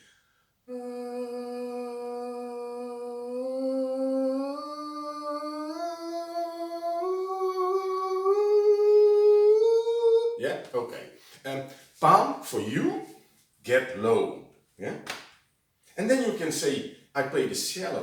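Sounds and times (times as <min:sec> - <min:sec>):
man holding wordless vocal tone: 0:06.7 - 0:15.0, 0:16.0 - 0:18.0.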